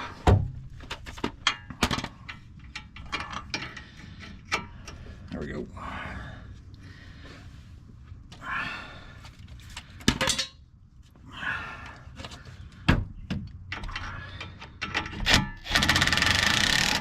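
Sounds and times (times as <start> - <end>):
metal clanking and scraping: 0.9 - 5.1.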